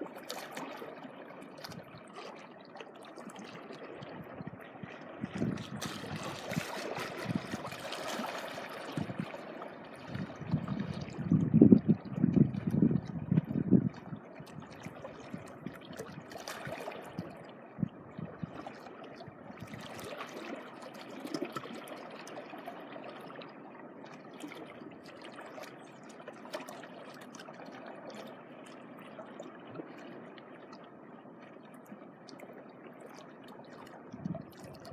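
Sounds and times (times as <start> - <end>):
small waves washing on shore: 0.0 - 17.6.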